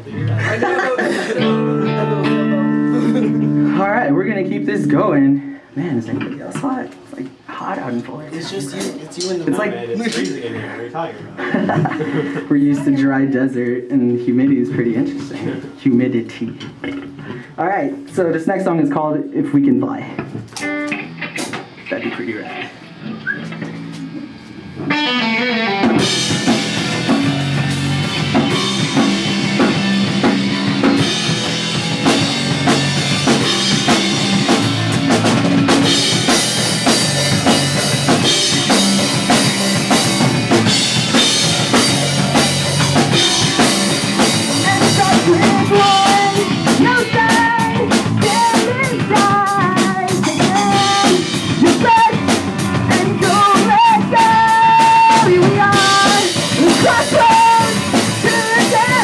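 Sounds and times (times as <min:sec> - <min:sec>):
drum kit: 0:00.0 - 0:05.3, 0:20.2 - 0:59.0
pop punk band playing live: 0:00.0 - 0:05.6, 0:20.2 - 0:59.0
person singing: 0:01.3 - 0:05.5, 0:42.9 - 0:59.0.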